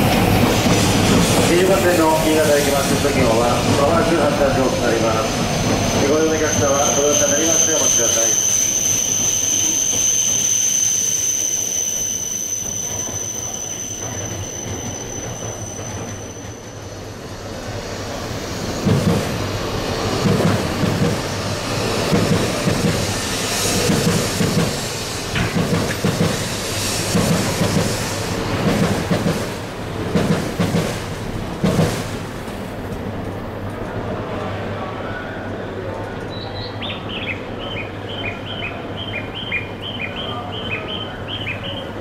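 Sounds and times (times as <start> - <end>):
high train whine: 0.0 - 42.0
train wheels clacking over rail joints: 20.2 - 21.3, 22.0 - 31.0, 31.6 - 32.6.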